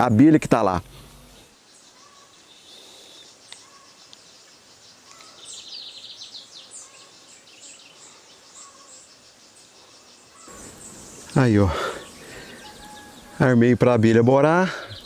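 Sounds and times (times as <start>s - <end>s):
faint outdoor background noise: 0.0s - 15.0s
wild birds chirping: 0.0s - 15.0s.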